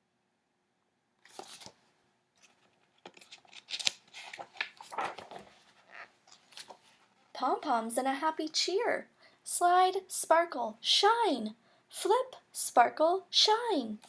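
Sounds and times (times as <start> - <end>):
book pages and cover rustling: 1.2 - 7.3.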